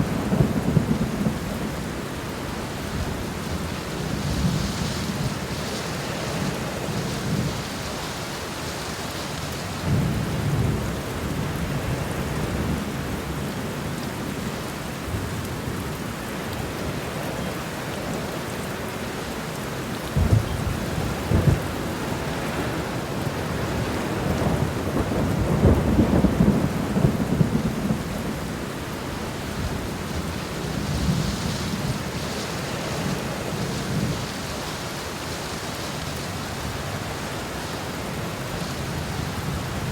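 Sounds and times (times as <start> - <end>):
steady rain falling: 0.0 - 39.9
thunder rumbling: 20.1 - 35.2.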